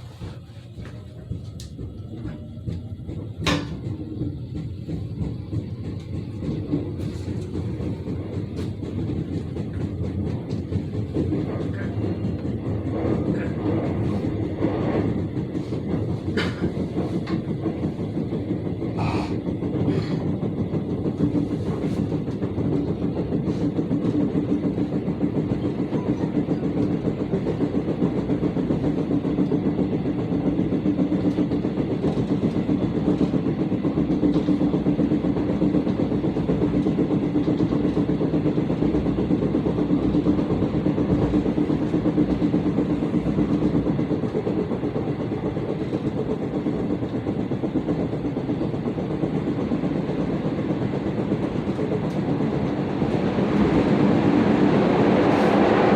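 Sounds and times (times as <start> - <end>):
train rumble and hum: 0.0 - 55.9
wheels thumping: 0.2 - 55.9.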